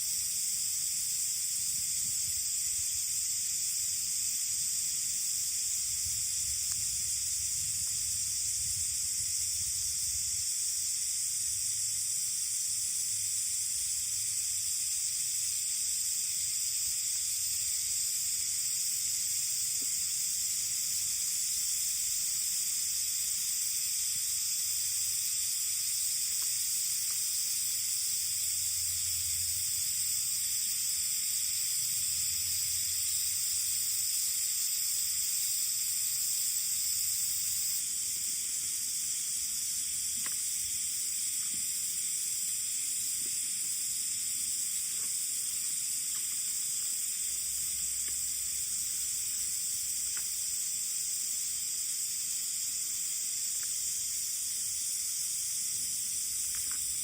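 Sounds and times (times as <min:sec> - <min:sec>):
high-pitched hiss: 0:00.0 - 0:57.0.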